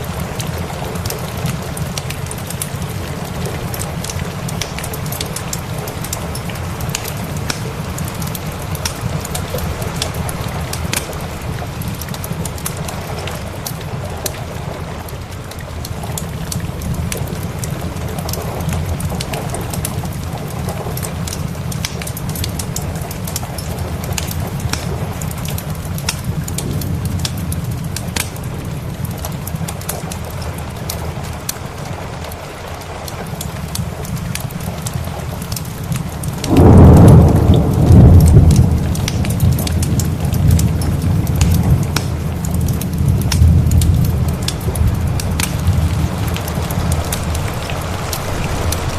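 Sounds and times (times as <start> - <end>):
steady rain: 0.0 - 48.9
wood fire crackling: 0.0 - 48.9
thunder rumble: 35.0 - 48.9.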